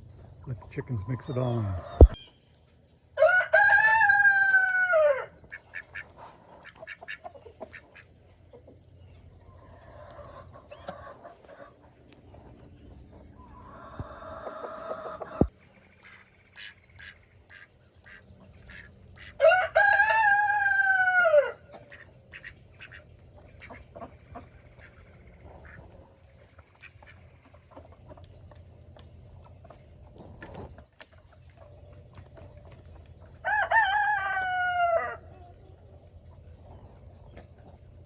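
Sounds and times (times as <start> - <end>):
rooster crowing: 3.2 - 5.3, 19.4 - 21.6, 33.4 - 35.2.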